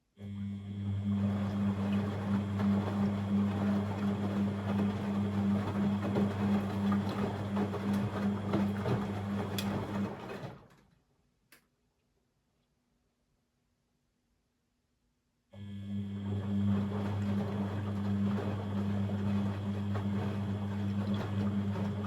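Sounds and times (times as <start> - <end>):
washing machine running: 0.2 - 10.8, 15.6 - 22.0
click: 11.5 - 11.7.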